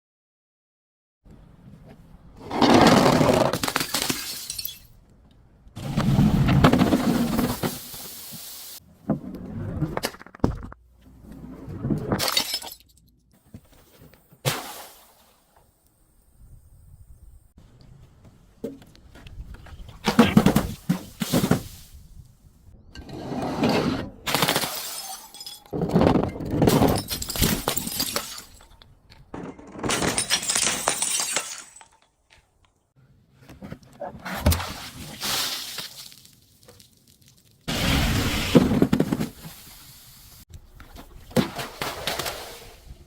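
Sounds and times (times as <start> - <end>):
glass bottles crushing and shattering: 3.6 - 5.0, 12.2 - 13.0, 24.3 - 28.8, 29.4 - 32.2.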